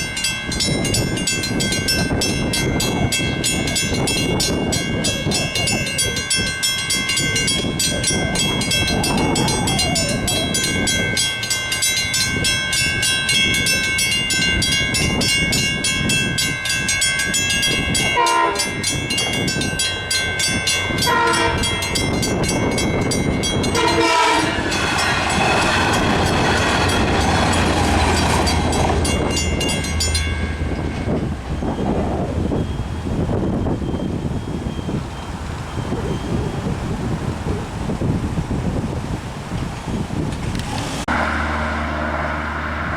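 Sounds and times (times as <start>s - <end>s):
crossing warning bells ringing: 0.0s - 38.1s, 41.0s - 42.9s
train rumbling over rails: 0.0s - 42.9s.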